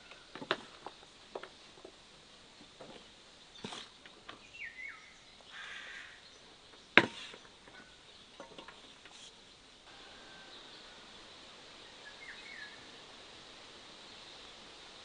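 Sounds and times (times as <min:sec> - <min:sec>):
falling bird call: 0:04.6 - 0:06.2
short rustle: 0:07.0 - 0:09.5.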